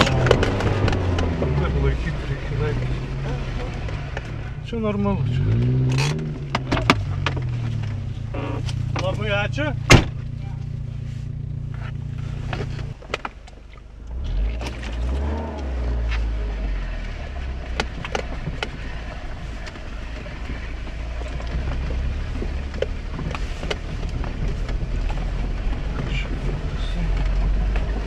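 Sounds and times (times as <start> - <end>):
sharp clicks and knocks: 0.0 - 1.7, 5.5 - 8.0, 11.8 - 16.3, 17.6 - 18.8
car engine running low: 0.0 - 28.0.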